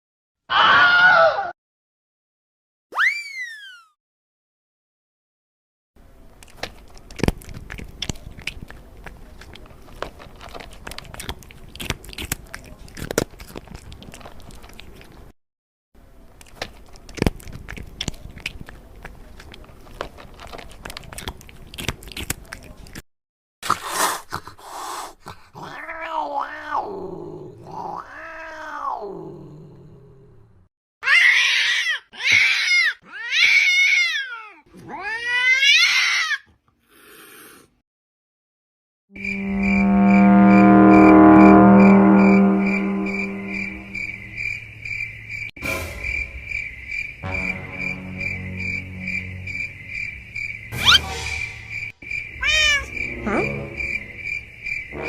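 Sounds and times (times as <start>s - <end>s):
cat meowing loudly: 0.5s - 1.5s, 31.0s - 36.5s, 52.4s - 53.5s
cat crunching food: 6.3s - 15.3s, 16.2s - 23.0s.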